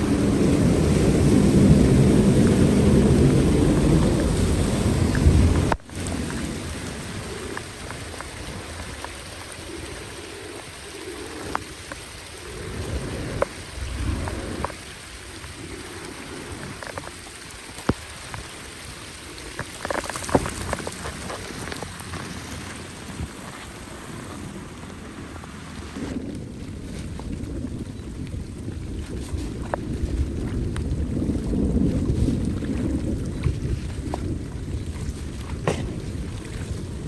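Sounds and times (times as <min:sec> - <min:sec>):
water drips and splashes: 0:00.0 - 0:37.0.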